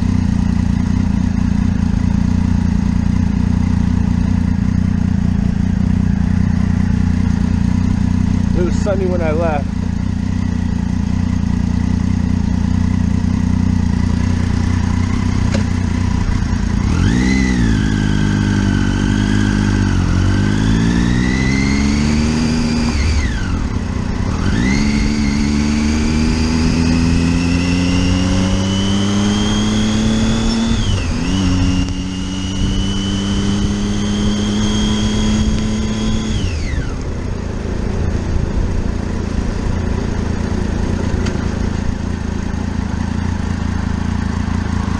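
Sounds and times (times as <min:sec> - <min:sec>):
motorcycle engine accelerating: 0:00.0 - 0:44.9
wind and road noise: 0:00.0 - 0:44.9.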